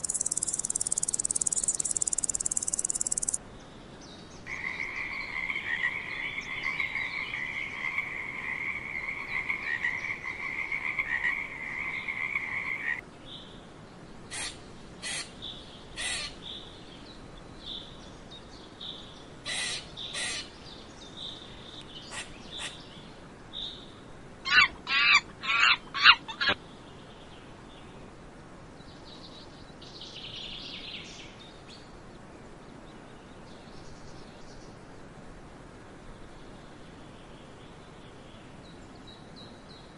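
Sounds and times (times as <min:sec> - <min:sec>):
faint outdoor background: 0:00.0 - 0:39.9
monkey calling harshly: 0:24.5 - 0:26.6.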